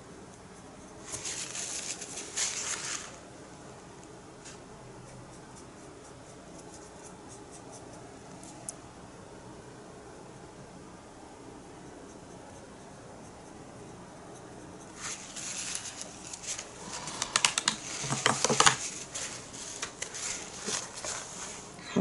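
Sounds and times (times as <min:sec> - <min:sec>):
faint room hiss: 0:00.0 - 0:22.0
paintbrush strokes: 0:14.4 - 0:17.2, 0:18.8 - 0:21.8.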